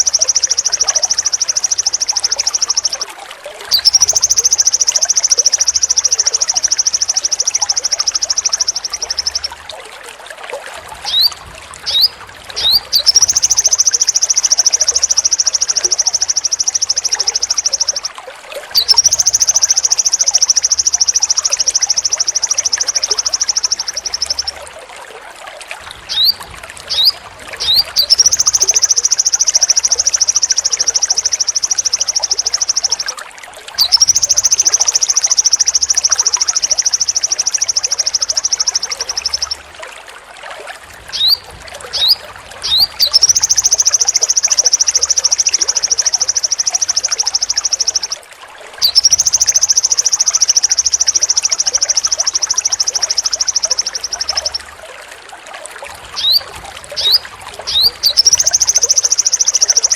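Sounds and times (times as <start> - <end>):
bird singing high trills: 0.0 - 3.1, 3.7 - 9.5, 11.1 - 18.1, 18.8 - 24.6, 26.1 - 33.1, 33.8 - 39.6, 41.1 - 48.2, 48.8 - 54.7, 56.2 - 59.9
rising bird chirps: 3.7 - 9.5, 11.1 - 18.1, 18.8 - 24.6, 26.1 - 33.0, 33.8 - 39.6, 41.1 - 48.2, 48.8 - 54.7, 56.2 - 59.9.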